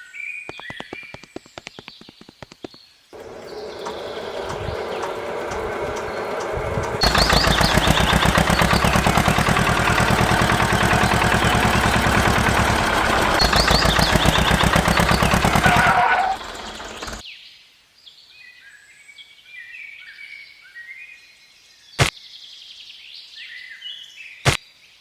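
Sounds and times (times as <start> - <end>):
engine chugging: 3.2 - 17.2.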